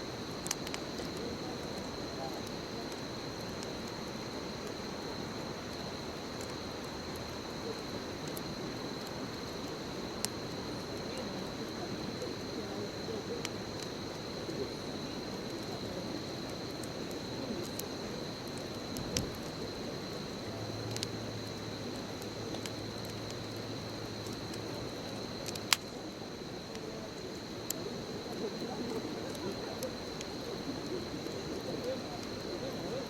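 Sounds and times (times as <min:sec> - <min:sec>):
bonfire crackling and popping: 0:00.0 - 0:33.0.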